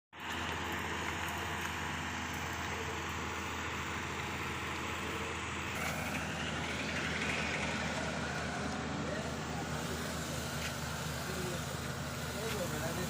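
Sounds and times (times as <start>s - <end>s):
diesel engine idling: 0.2s - 13.0s
broad hiss: 9.3s - 13.0s.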